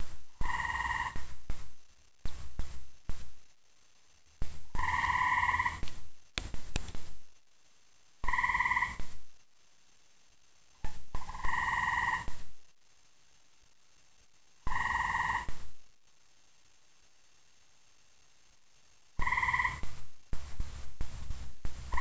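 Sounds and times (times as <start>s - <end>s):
tree frog trilling: 0.4s - 1.2s, 4.8s - 5.9s, 8.2s - 9.0s, 11.2s - 12.3s, 14.7s - 15.5s, 19.2s - 19.9s.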